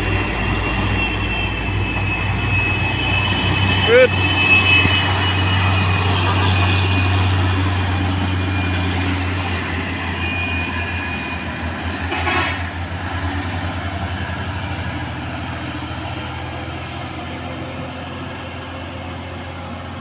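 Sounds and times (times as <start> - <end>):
diesel truck engine pulsing drone: 0.0 - 12.0.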